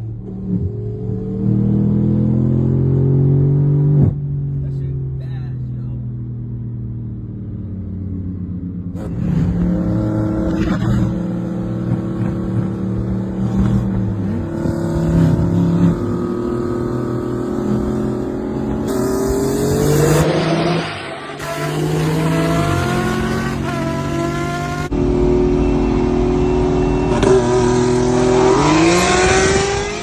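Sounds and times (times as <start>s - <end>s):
car engine revving: 8.8s - 30.0s.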